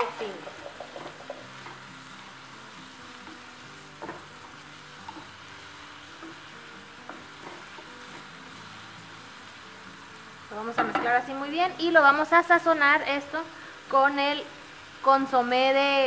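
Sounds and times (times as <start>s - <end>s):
wooden spoon knocking a pan: 0.0s - 1.8s, 4.0s - 4.3s, 10.7s - 11.2s
vegetables sizzling in a skillet: 0.0s - 16.0s.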